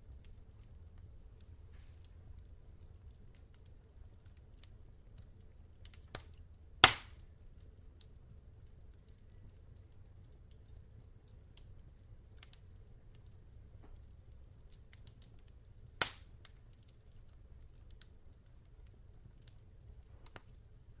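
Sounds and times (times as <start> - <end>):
log fire crackling: 0.0 - 21.0
low steady rumble: 0.0 - 21.0
loud sharp crack: 6.8 - 7.2.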